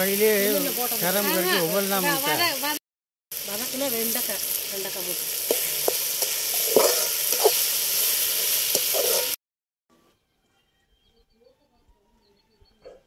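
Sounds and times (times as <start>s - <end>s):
vegetables sizzling in pot: 0.0s - 9.4s
metal ladle scraping pot: 5.5s - 7.7s, 8.7s - 9.4s.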